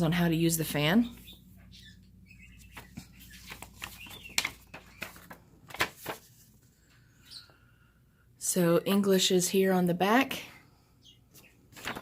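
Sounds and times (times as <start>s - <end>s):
paper rustling: 2.6s - 7.1s, 11.3s - 12.0s.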